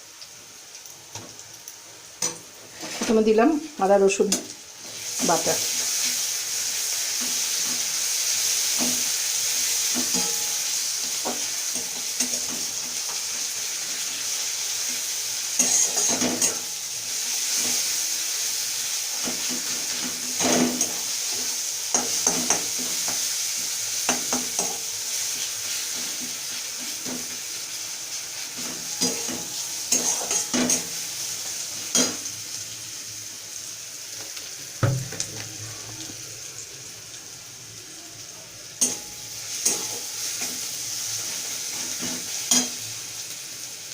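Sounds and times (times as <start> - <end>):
onions sizzling in oil: 0.0 - 43.9
spatula scraping a pan: 2.2 - 3.2, 15.6 - 16.7, 28.6 - 31.0.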